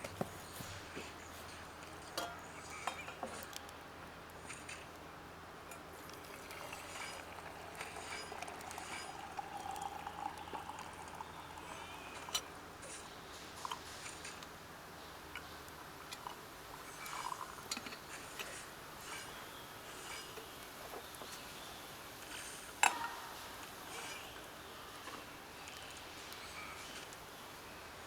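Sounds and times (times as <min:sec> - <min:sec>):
liquid pouring: 0:05.9 - 0:14.4, 0:16.2 - 0:18.6.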